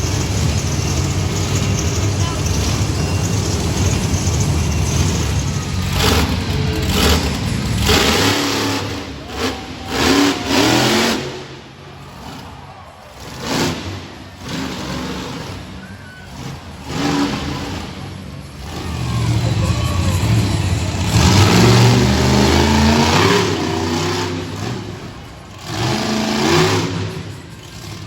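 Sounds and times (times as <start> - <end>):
monster truck engines revving: 0.0 - 28.0.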